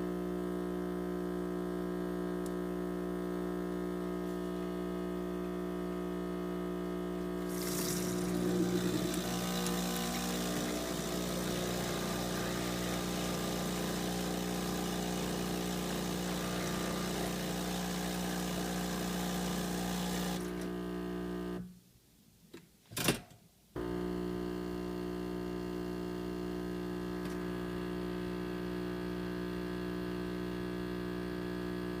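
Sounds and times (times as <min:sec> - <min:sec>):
espresso machine buzzing: 0:07.2 - 0:21.6, 0:23.8 - 0:31.9.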